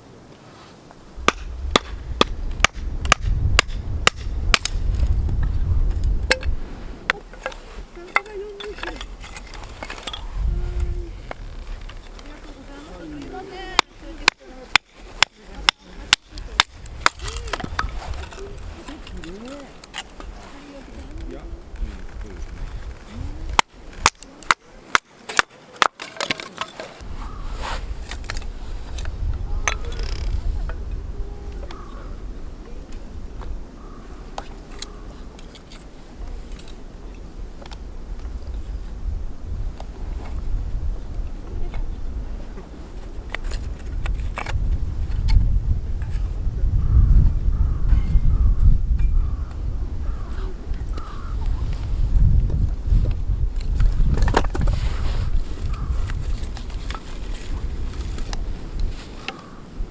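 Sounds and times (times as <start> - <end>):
hand tool striking hard: 1.2 - 4.8
firewood being chopped: 1.2 - 10.2, 13.2 - 18.4, 22.6 - 27.4.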